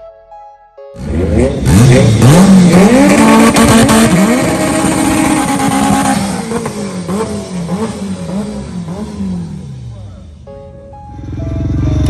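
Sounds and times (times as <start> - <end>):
car engine revving high: 1.0 - 10.4.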